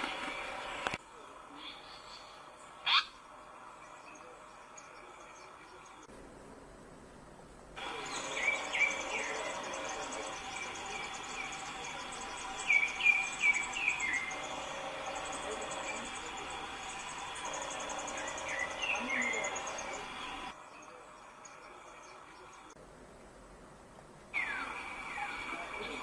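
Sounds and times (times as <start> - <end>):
crickets and insects droning: 0.0 - 6.7, 7.4 - 22.8, 24.3 - 26.0
bird chirping: 7.8 - 22.8.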